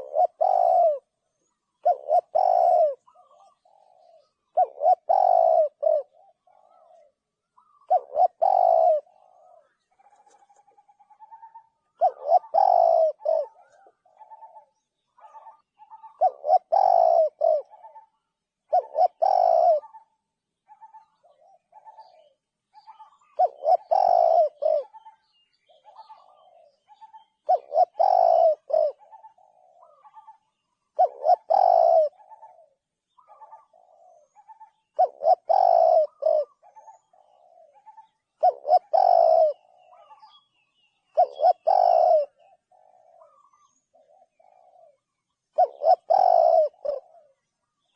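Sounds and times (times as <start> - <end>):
dove cooing: 0.0 - 47.9.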